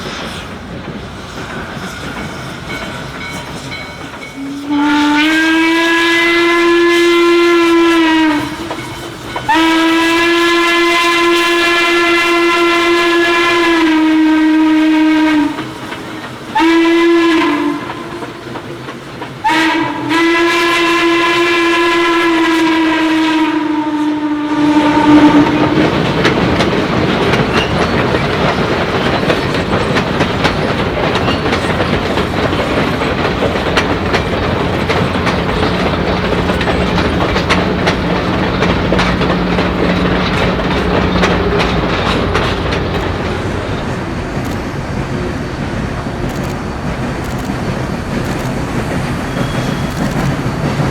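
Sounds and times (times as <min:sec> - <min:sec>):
train wheels rumbling on rail: 0:00.0 - 0:50.9
steam whistle blowing: 0:04.3 - 0:18.6, 0:19.4 - 0:26.3.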